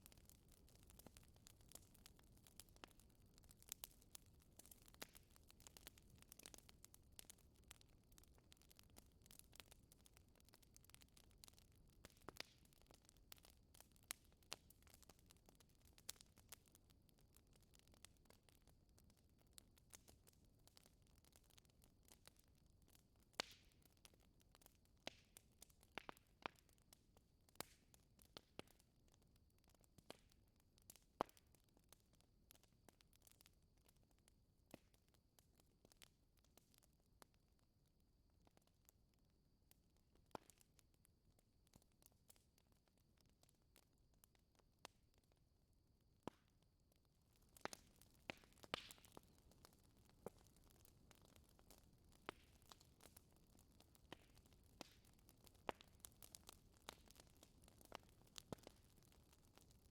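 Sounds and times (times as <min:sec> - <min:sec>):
wood fire crackling: 0:00.0 - 0:37.3, 0:39.7 - 0:45.4, 0:46.2 - 0:59.9
fire pops: 0:47.4 - 0:53.2, 0:53.8 - 0:59.7.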